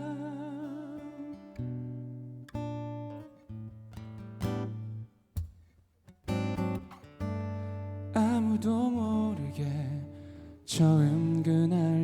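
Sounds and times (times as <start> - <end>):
person singing a ballad: 0.0 - 1.6, 8.1 - 12.0
acoustic guitar strumming chords: 6.2 - 12.0.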